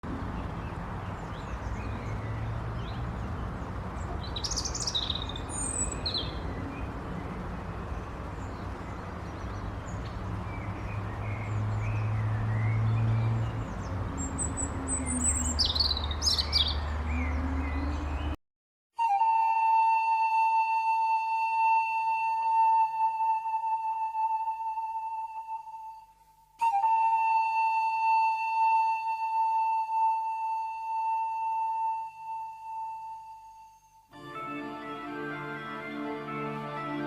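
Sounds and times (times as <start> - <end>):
small birds chirping: 0.1 - 18.4.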